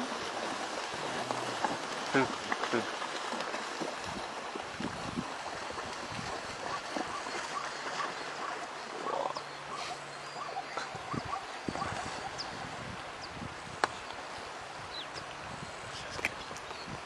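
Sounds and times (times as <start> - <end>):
water rushing and splashing: 0.0 - 17.0.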